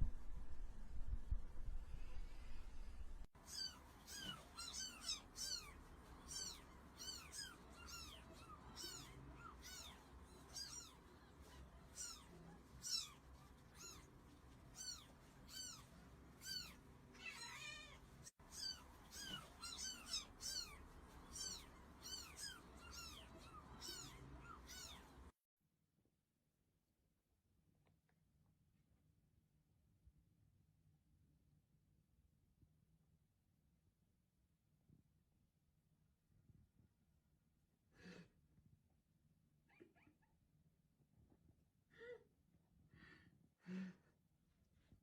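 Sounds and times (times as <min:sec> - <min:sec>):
cat meowing: 0:03.4 - 0:14.1, 0:14.7 - 0:25.3.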